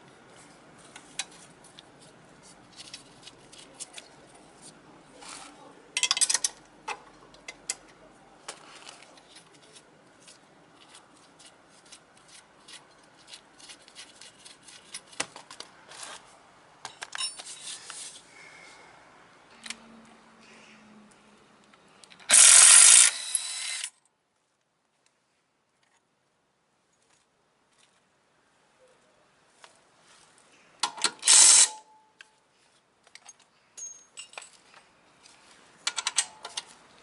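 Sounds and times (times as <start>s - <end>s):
metal tools clicking and clinking: 6.0s - 6.6s, 16.8s - 17.7s, 33.1s - 34.8s, 35.8s - 36.8s.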